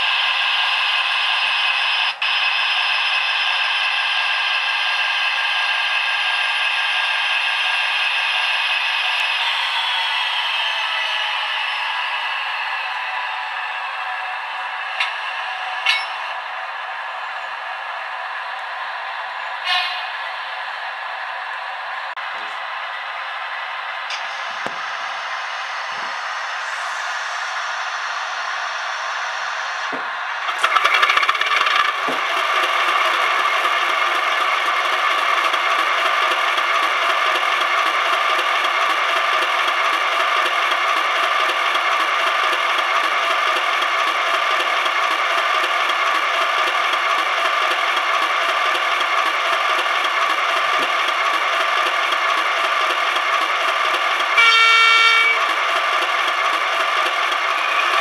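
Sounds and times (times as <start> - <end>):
model diesel engine sound: 0.0 - 16.2, 24.1 - 58.0
short horn blast: 54.4 - 55.4.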